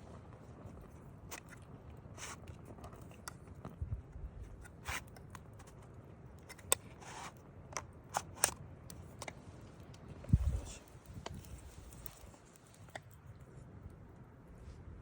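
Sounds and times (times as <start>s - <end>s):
flames burning: 0.0s - 15.0s.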